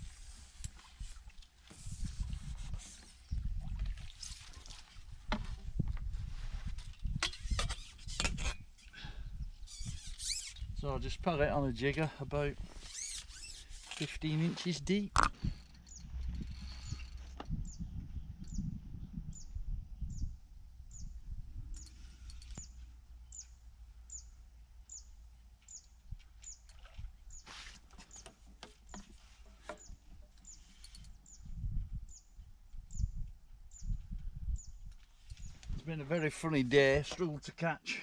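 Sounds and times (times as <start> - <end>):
small bird chirping: 15.4 - 20.3, 20.9 - 28.3, 29.7 - 35.7.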